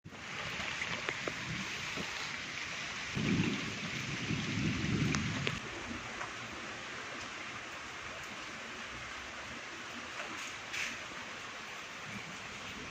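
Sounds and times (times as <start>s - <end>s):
heavy rain falling: 0.0s - 12.9s
rain drop ticks: 0.4s - 2.1s, 4.9s - 6.4s
low rumble of thunder: 3.1s - 6.0s.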